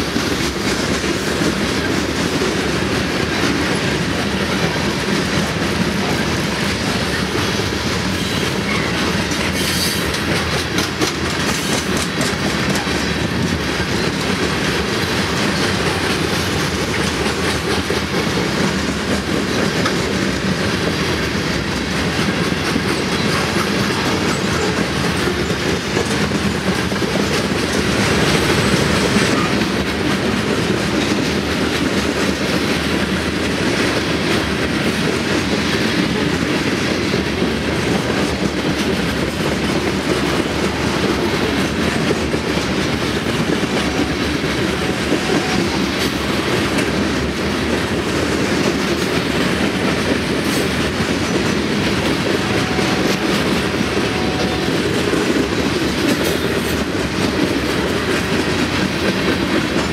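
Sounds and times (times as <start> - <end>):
freight cars rumbling and rattling: 0.0 - 59.9
train wheels clacking on rails: 0.0 - 59.9.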